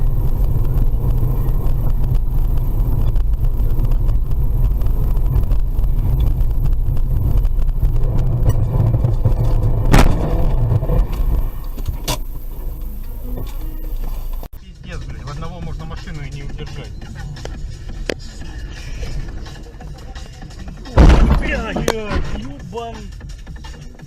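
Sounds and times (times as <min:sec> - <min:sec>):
car engine and road noise: 0:00.0 - 0:24.0
sharp knock: 0:21.0 - 0:22.5.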